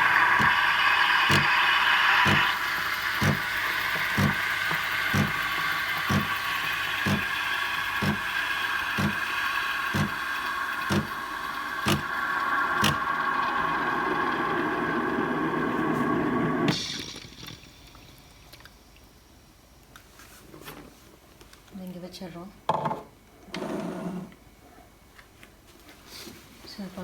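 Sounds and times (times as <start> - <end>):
pump pulsing knocks: 0.0 - 13.4
steam wand hissing: 0.0 - 17.0.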